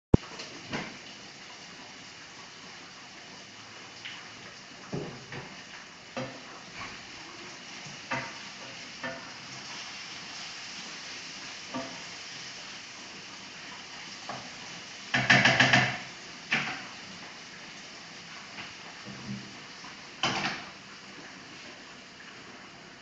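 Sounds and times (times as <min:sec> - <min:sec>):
food sizzling in frying pans: 0:00.1 - 0:23.0.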